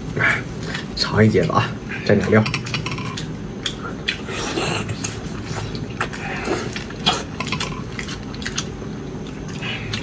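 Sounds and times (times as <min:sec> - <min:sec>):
chewing food: 0:03.0 - 0:10.0.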